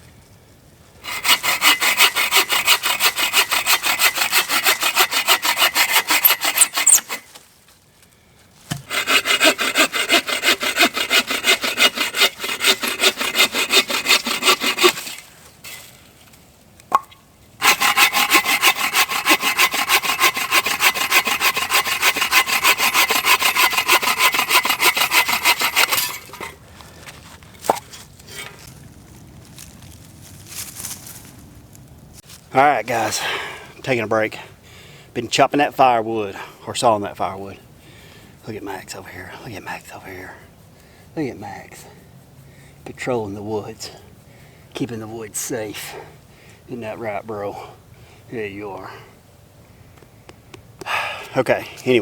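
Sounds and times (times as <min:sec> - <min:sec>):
bow saw cutting wood: 0:01.0 - 0:07.4, 0:08.7 - 0:15.9, 0:17.6 - 0:26.6.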